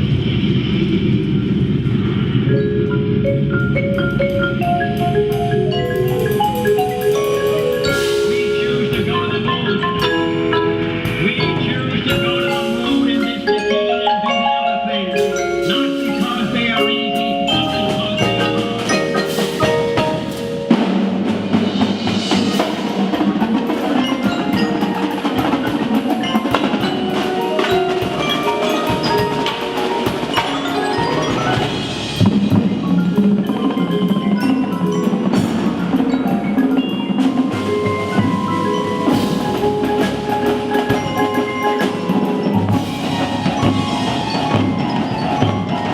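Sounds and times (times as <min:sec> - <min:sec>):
drums: 0:00.0 - 0:45.9
percussion ensemble playing: 0:00.0 - 0:45.9
marimba and glockenspiel melody: 0:02.3 - 0:45.9
sharp percussion hit: 0:15.2 - 0:45.9.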